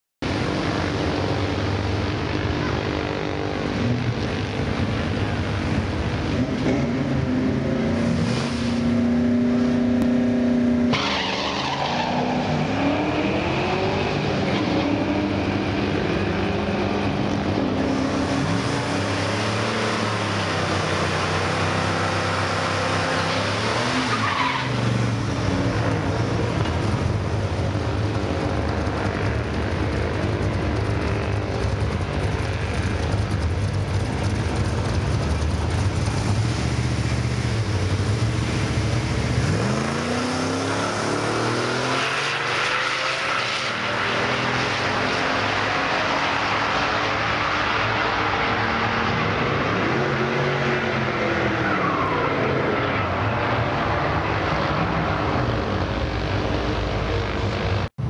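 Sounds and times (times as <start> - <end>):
drag racing engines revving: 0.2 - 58.0
tyre squeal: 10.9 - 12.9.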